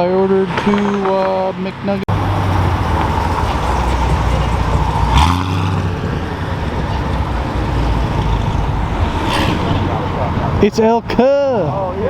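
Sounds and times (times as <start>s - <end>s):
car engine running low: 2.1s - 10.7s
brief burst of loud noise: 8.7s - 10.6s.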